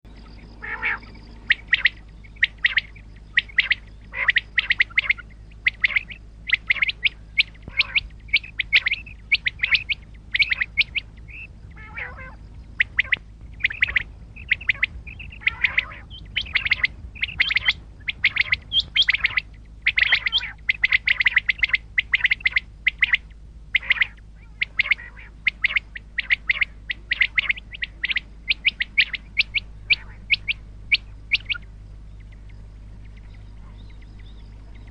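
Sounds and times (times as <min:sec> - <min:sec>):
quail calling: 0:00.0 - 0:34.9
steady low hum: 0:00.0 - 0:34.9.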